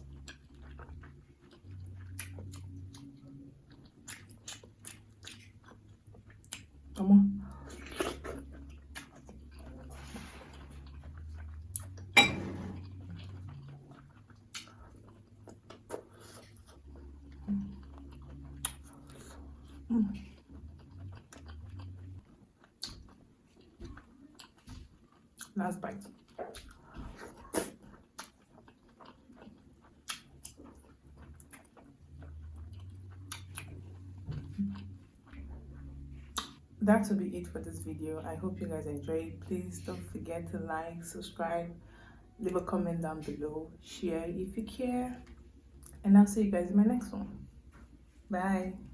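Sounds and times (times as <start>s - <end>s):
soft wet chewing: 0.0s - 12.2s, 12.8s - 43.9s, 44.5s - 46.1s, 46.8s - 48.9s
low steady hum: 0.0s - 48.9s
dishes clinking: 12.2s - 12.9s
mouth clicks and smacks: 22.7s - 23.2s, 36.3s - 36.6s.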